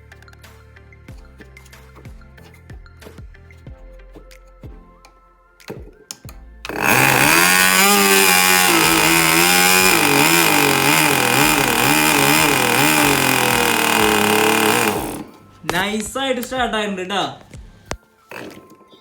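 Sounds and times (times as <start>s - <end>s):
model airplane engine running: 6.7s - 15.3s.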